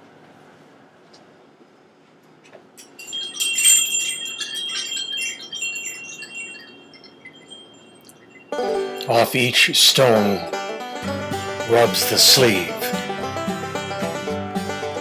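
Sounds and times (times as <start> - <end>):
tinkling chimes: 2.8 - 10.6.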